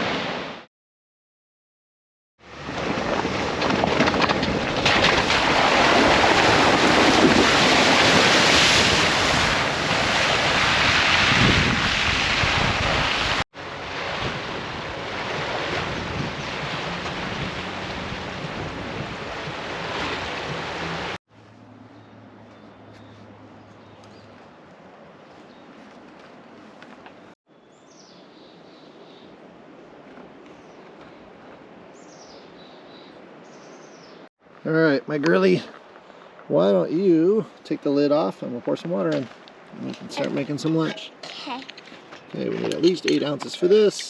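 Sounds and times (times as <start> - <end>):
wind noise on microphone: 2.5 - 21.2
waterfall roaring: 12.9 - 21.2.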